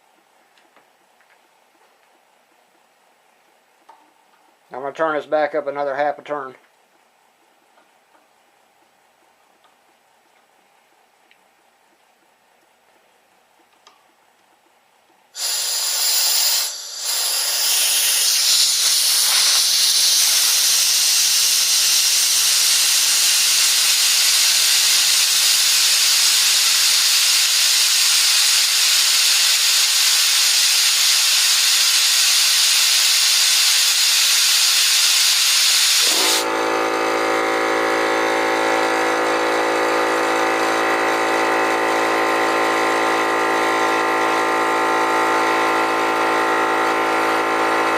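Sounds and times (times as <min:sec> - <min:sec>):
compressed air hissing: 0:15.4 - 0:37.0
air compressor motor running: 0:15.4 - 0:47.9.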